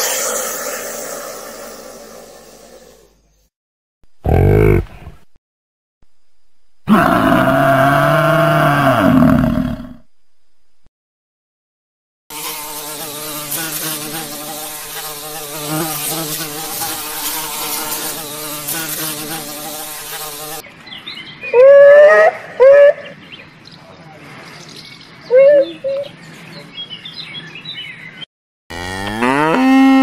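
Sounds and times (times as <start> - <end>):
bison grunting: 4.2 - 5.2
honeybee buzzing: 12.3 - 20.6.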